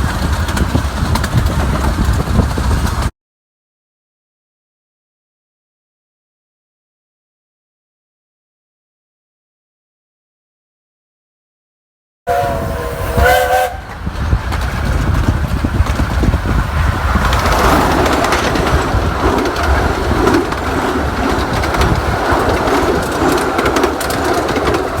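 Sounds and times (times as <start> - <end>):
train wheels clattering on rails: 0.0 - 3.1, 12.4 - 25.0
train chime whistle blasts: 12.3 - 13.9.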